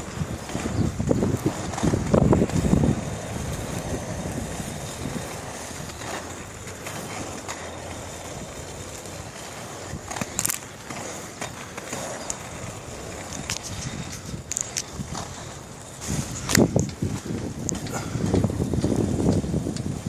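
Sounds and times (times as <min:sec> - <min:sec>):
bicycle tyres rolling on pavement: 0:00.0 - 0:20.0.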